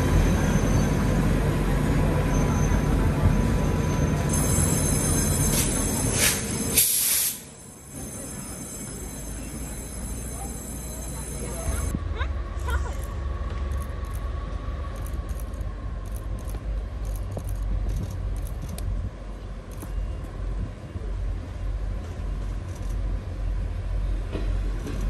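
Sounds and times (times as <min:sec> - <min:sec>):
diesel railcar rumbling: 0:00.0 - 0:25.0.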